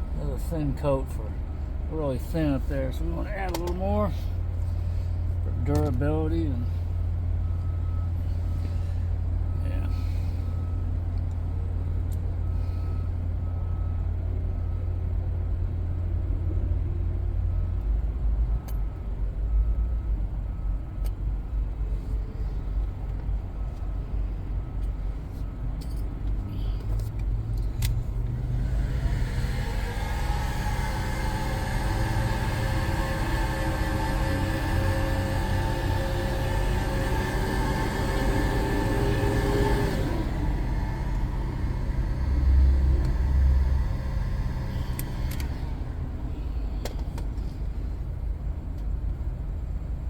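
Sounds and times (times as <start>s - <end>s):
vehicle engine rumbling: 0.0s - 50.0s
reversing alarm beeping: 5.4s - 15.6s, 28.6s - 45.3s.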